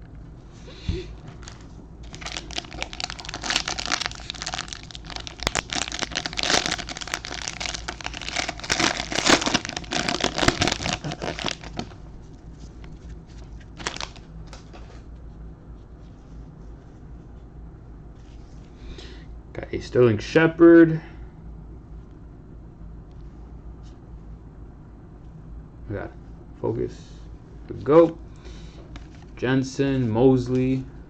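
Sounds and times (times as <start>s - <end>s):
plastic wrapper crinkling: 1.4s - 12.0s, 12.8s - 14.9s, 28.9s - 29.4s.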